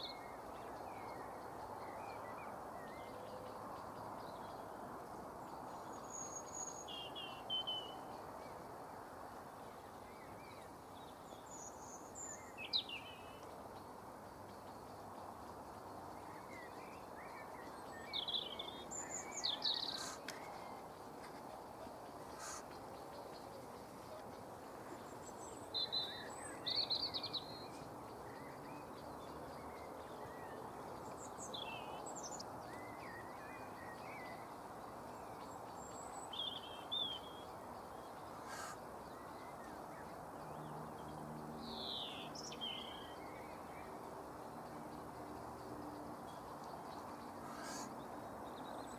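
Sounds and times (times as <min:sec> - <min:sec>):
short high bird calls: 0:38.4 - 0:38.8, 0:47.4 - 0:47.9.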